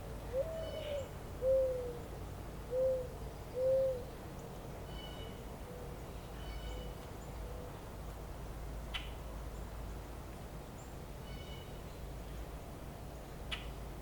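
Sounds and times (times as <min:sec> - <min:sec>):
steady low background hiss: 0:00.0 - 0:14.0
bird low hoots: 0:00.3 - 0:02.0, 0:02.7 - 0:04.1.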